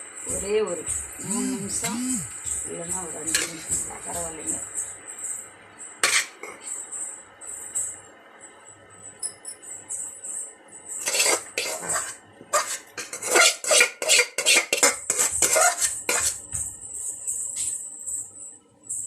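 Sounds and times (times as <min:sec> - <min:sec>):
metal cookware clattering: 0:06.0 - 0:06.6.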